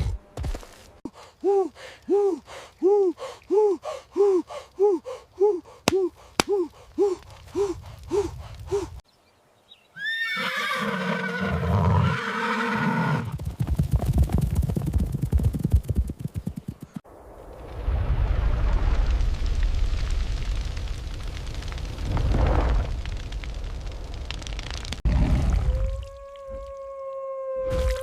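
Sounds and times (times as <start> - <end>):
panting gasps: 1.1 - 9.0
horse whinnying: 10.0 - 13.3
galloping hooves: 13.2 - 17.0.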